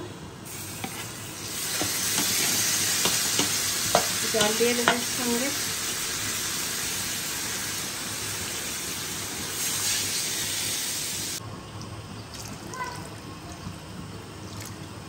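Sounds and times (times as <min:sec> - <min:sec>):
hot oil sizzling: 0:00.4 - 0:11.4.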